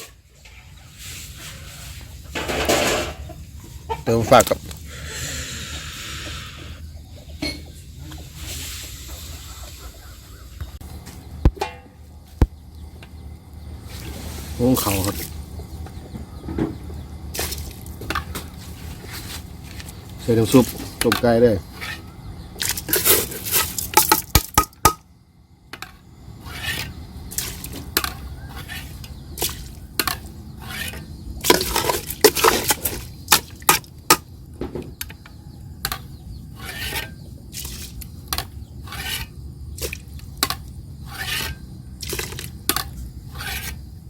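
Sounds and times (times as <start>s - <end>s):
utensils clattering against cookware: 2.2s - 3.4s, 7.4s - 8.8s, 16.5s - 22.0s, 22.6s - 25.0s, 25.8s - 43.7s.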